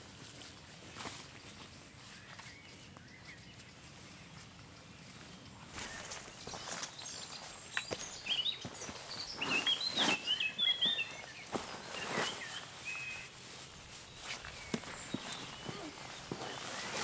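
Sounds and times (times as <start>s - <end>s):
songbird singing: 1.4s - 17.0s
crunches in wood-chip mulch: 5.7s - 17.0s.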